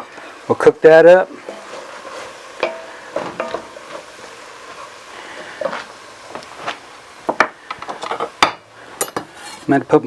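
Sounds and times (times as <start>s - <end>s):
butter sizzling in a pot: 0.0s - 10.0s
spoon scraping and knocking pot: 1.5s - 4.0s, 7.3s - 9.7s.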